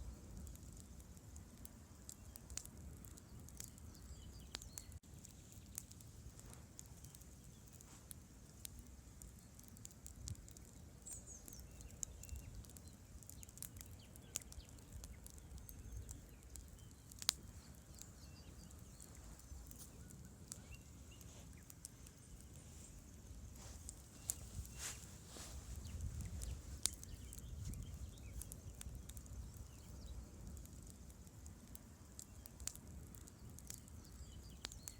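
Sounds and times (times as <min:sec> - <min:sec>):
campfire wood crackling: 0:00.0 - 0:34.9
faint low rumble: 0:14.7 - 0:32.2.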